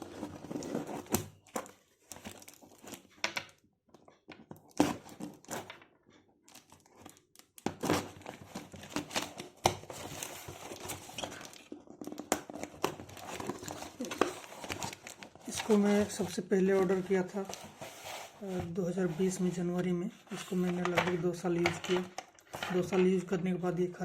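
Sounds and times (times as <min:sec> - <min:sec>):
packaging crinkling and rustling: 0:00.0 - 0:03.2, 0:06.5 - 0:23.2
packaging tearing: 0:07.8 - 0:16.0.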